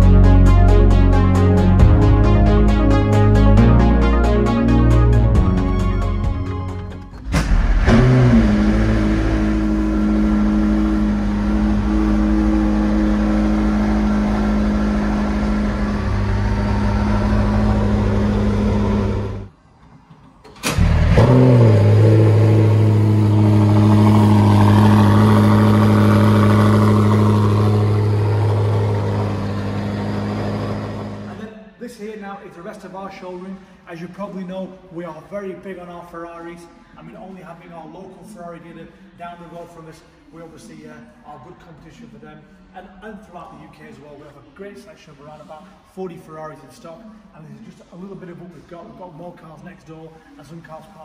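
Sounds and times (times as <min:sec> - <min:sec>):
car engine starting and idling: 0:00.0 - 0:19.5, 0:20.4 - 0:31.4.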